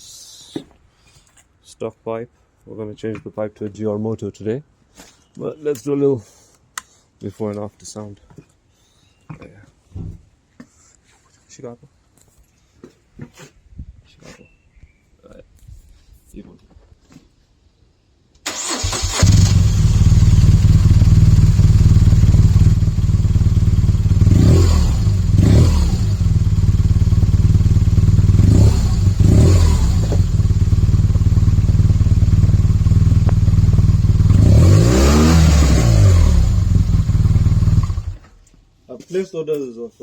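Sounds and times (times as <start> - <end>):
motorcycle engine starting and idling: 18.4 - 38.6
motorcycle engine revving: 18.5 - 38.4.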